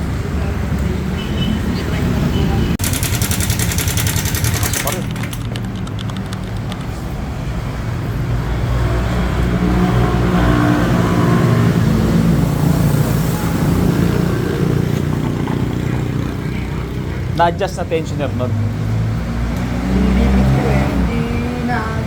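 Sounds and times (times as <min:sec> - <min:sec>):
fast clicking engine knock: 0:02.8 - 0:07.5
motorcycle engine running: 0:02.8 - 0:08.1.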